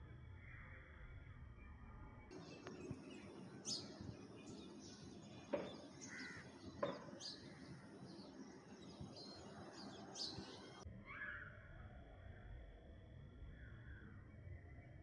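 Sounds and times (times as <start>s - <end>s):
birds chirping: 2.3s - 10.8s
harsh bird calls: 2.3s - 10.8s.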